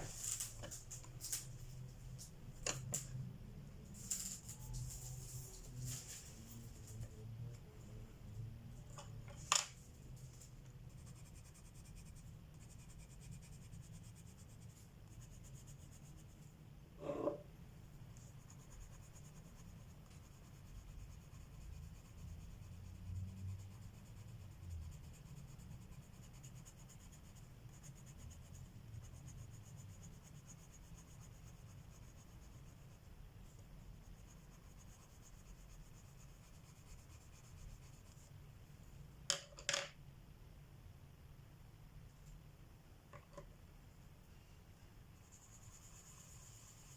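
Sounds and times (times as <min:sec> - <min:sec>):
pencil scratching on paper: 0:10.8 - 0:17.4, 0:18.2 - 0:38.3, 0:45.2 - 0:46.9.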